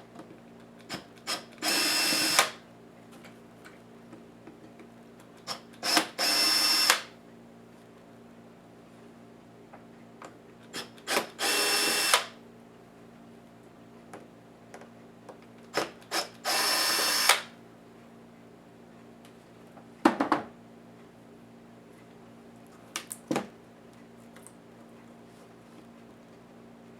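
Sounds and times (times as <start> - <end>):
electric screwdriver whirring: 0.9 - 2.6, 5.5 - 7.1, 10.8 - 12.3, 15.8 - 17.5.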